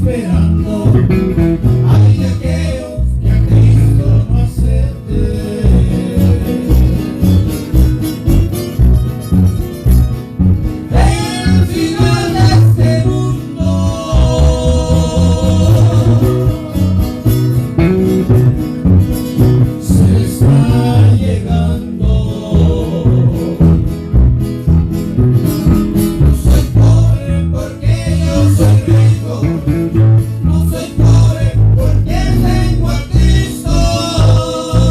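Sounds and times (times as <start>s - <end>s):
person singing: 0.0s - 7.1s, 10.9s - 17.3s, 19.6s - 23.9s, 26.4s - 34.9s
bass guitar: 0.0s - 34.9s
guitars playing: 0.0s - 34.9s.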